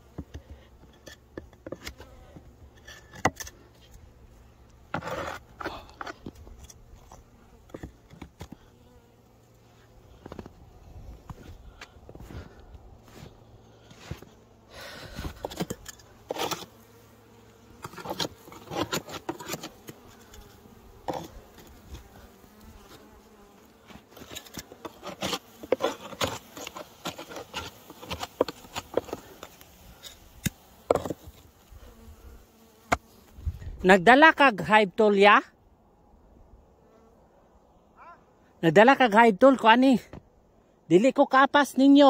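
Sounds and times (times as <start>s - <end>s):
honeybees buzzing: 0.0s - 38.0s
knocks and scraping clicks: 17.8s - 20.4s, 24.1s - 29.6s.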